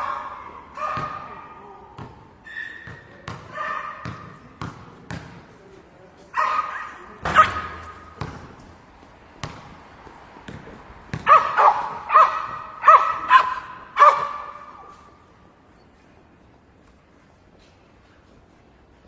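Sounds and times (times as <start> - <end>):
basketball bouncing: 0.0 - 1.4, 2.0 - 5.5, 7.2 - 14.7
sneaker squeaks on hardwood: 2.0 - 4.4.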